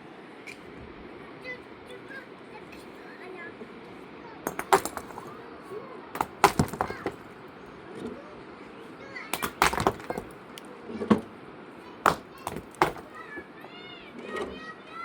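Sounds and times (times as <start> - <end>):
sharp cracks and knocks: 4.5 - 5.3, 6.2 - 7.2, 9.4 - 10.7, 12.1 - 13.2.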